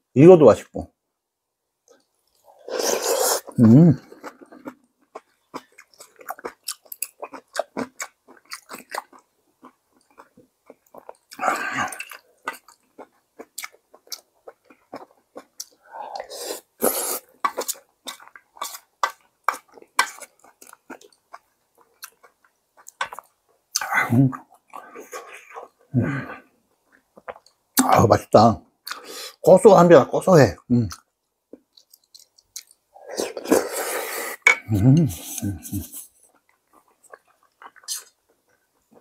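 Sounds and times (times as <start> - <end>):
person chewing and smacking: 3.4 - 25.9, 26.7 - 27.9, 30.9 - 33.7, 34.4 - 39.0.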